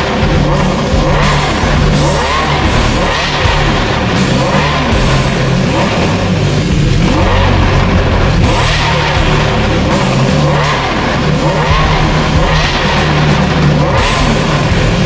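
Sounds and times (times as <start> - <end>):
background music: 0.0 - 15.0
car engine revving: 0.0 - 15.0.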